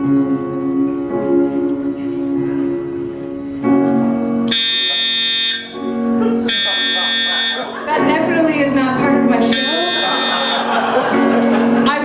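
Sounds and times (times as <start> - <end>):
soft live band: 0.0 - 4.5, 5.6 - 12.0
electronic alarm horn: 4.5 - 5.9, 6.5 - 7.8, 9.5 - 10.7
shrill alarm tone: 4.5 - 5.9, 6.5 - 7.8, 9.5 - 10.8.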